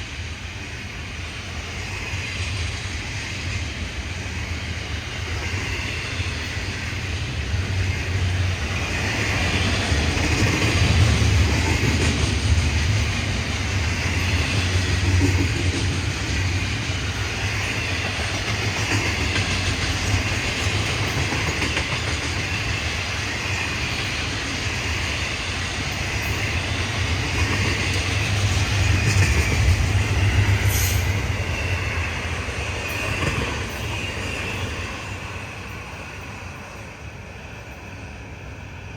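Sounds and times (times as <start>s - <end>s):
light wheel squeal: 30.4s - 32.0s.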